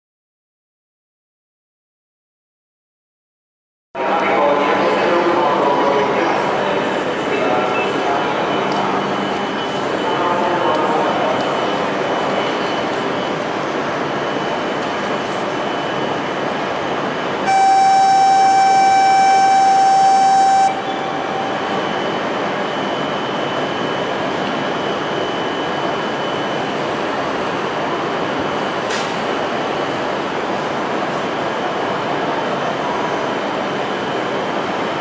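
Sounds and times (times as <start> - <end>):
train humming with high whine: 4.0 - 35.0
horn-like tone: 17.5 - 21.6.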